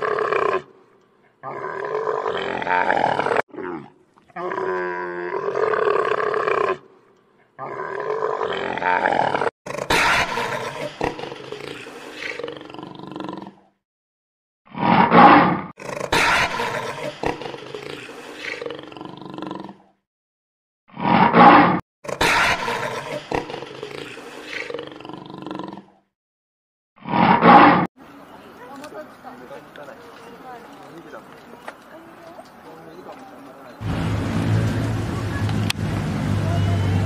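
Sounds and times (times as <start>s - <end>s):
big cat roaring: 0.0s - 0.7s, 1.4s - 6.9s, 7.6s - 13.6s
big cat growling: 14.8s - 19.9s, 21.0s - 26.1s.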